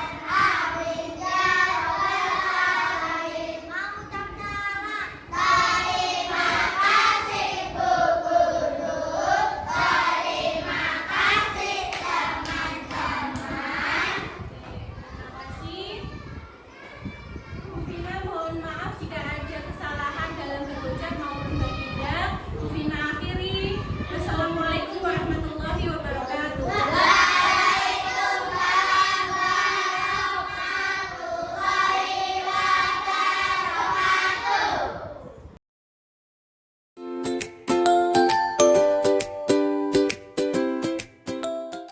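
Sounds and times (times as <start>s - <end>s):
children singing in unison: 0.0s - 3.7s, 5.3s - 14.3s, 26.7s - 35.0s.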